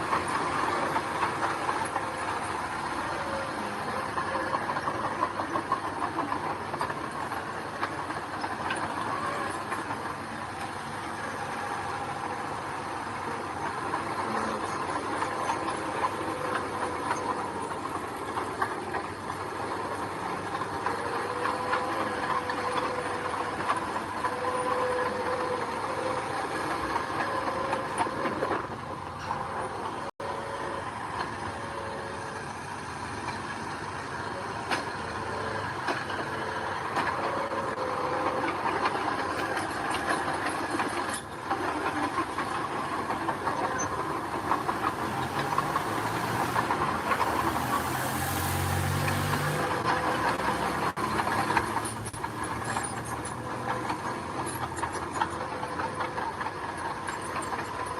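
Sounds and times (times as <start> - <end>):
diesel engine running: 0.0 - 57.9
machine whining tones: 0.0 - 57.9.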